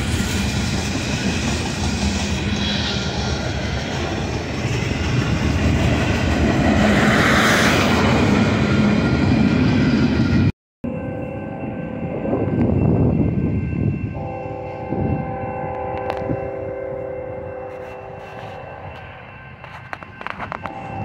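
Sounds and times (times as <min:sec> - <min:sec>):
steel wheels running on rails: 0:00.0 - 0:21.0.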